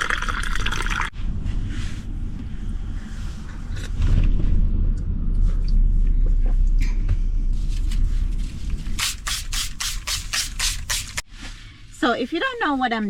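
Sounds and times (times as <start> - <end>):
low rumble: 1.1 - 9.3.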